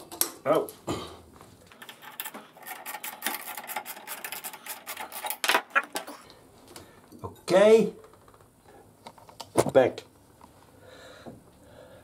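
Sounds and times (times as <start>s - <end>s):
small clicks and scraping: 1.7s - 6.9s.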